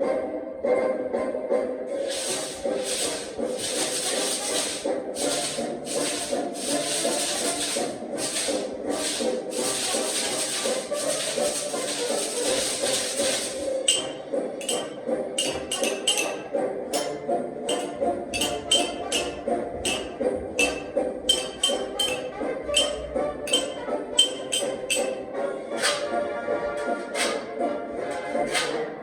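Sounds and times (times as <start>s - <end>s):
recorded music: 1.0s - 29.0s
long swishing percussion strokes: 1.9s - 26.2s
quick clicking percussion strikes: 2.0s - 25.2s.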